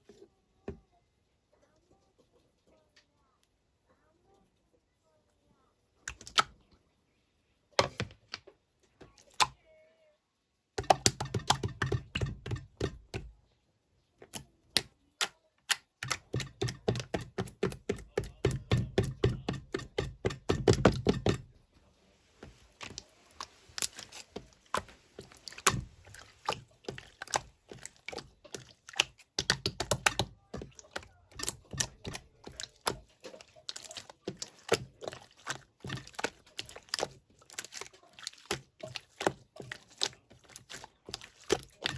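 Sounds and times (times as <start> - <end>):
slime squished by hand: 22.3 - 41.9.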